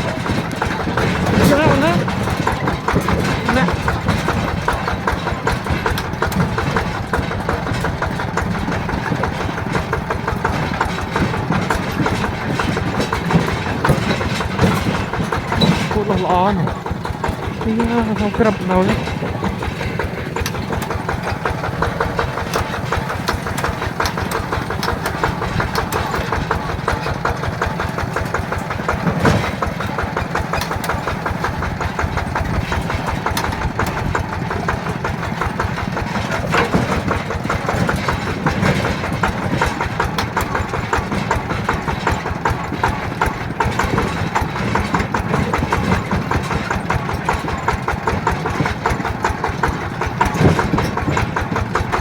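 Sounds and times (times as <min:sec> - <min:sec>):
diesel engine chugging: 0:00.0 - 0:52.0.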